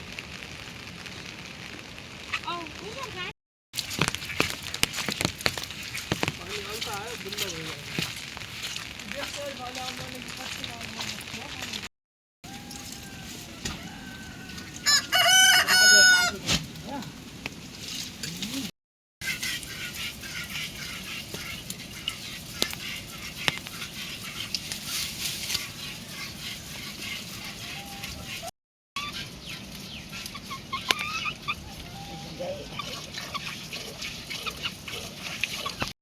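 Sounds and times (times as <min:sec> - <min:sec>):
rooster crowing: 0:12.4 - 0:16.4.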